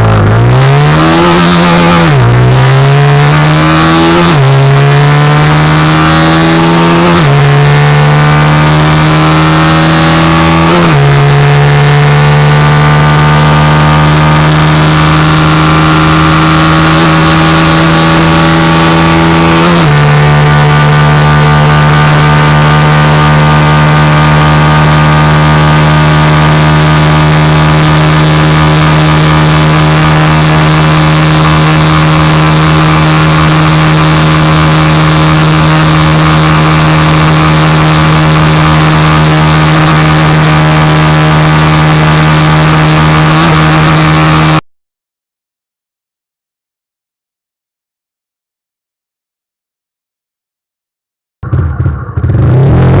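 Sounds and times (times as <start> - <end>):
motorcycle engine running steadily: 4.0 - 44.6, 51.4 - 53.0.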